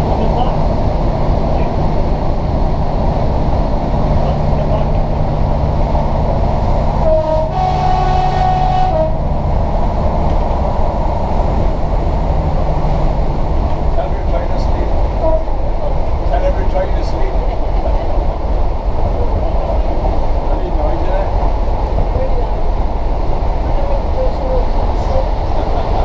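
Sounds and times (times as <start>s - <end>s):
diesel train rumble: 0.0s - 26.0s
train horn: 7.0s - 9.3s, 15.2s - 15.6s.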